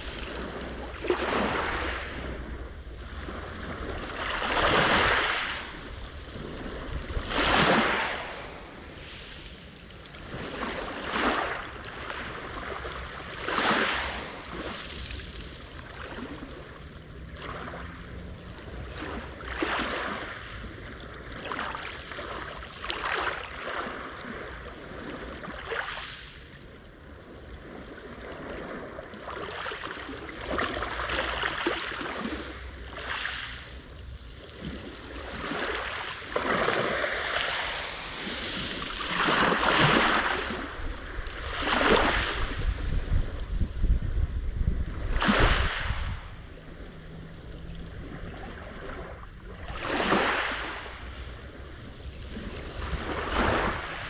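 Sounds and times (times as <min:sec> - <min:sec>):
wind on microphone: 0:00.0 - 0:21.8, 0:33.6 - 0:54.0
sea waves breaking on shore: 0:00.0 - 0:54.0.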